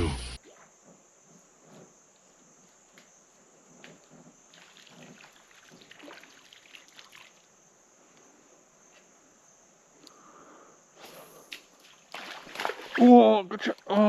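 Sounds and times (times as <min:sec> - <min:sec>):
faint water splashes and ticks: 0:00.4 - 0:09.0, 0:11.5 - 0:14.0.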